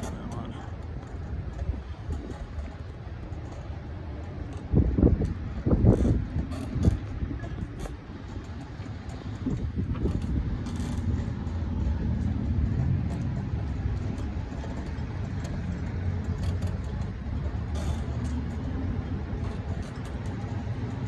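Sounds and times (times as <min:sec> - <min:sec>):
motor vehicle low rumble: 0:00.0 - 0:21.0.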